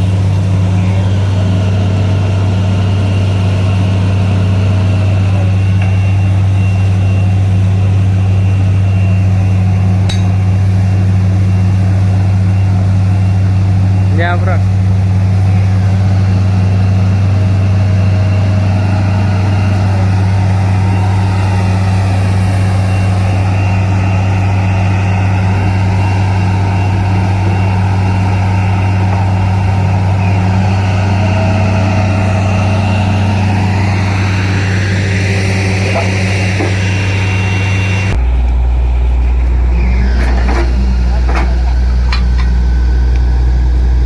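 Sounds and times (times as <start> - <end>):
drilling rig diesel engine drone: 0.0 - 44.0
hissing clattering machinery: 0.0 - 44.0.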